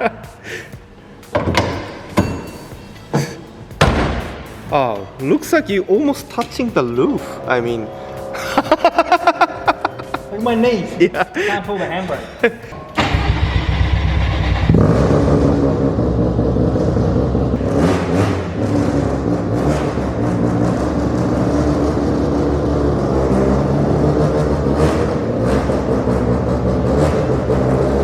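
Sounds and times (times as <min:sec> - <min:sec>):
kart engine revving: 0:07.2 - 0:11.0, 0:12.9 - 0:28.0.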